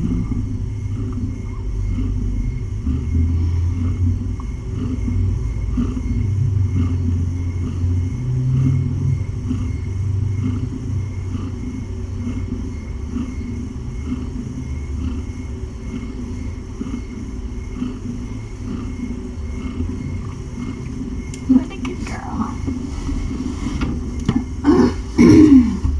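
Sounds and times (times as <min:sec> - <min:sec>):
cat purring: 0:00.0 - 0:25.9.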